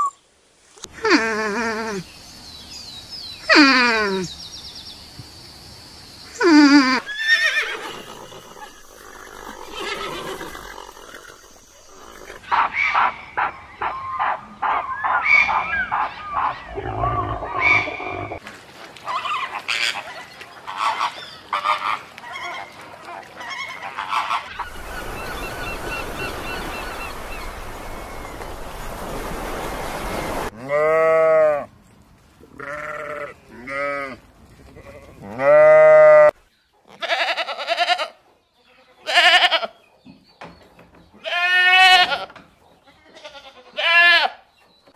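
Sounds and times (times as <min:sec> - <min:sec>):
flamingos honking: 0:19.1 - 0:27.8
sheep and lambs bleating: 0:30.6 - 0:31.7, 0:32.5 - 0:36.3, 0:36.9 - 0:39.8, 0:41.2 - 0:42.3, 0:42.9 - 0:44.4.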